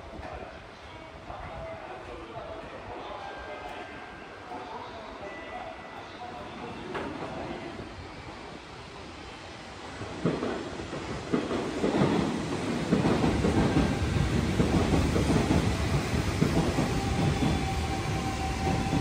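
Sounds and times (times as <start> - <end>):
train whine: 6.6 - 19.0
train wheels rumbling on rails: 9.7 - 19.0.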